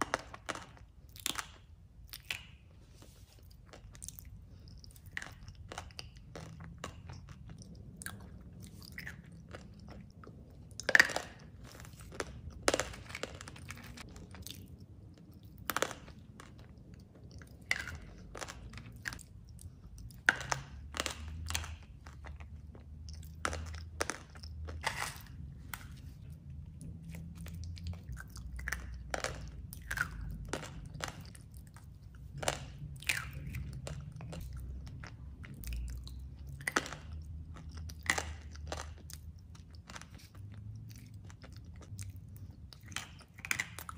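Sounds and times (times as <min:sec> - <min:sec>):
chewing and crunching dessert: 0:00.0 - 0:43.9.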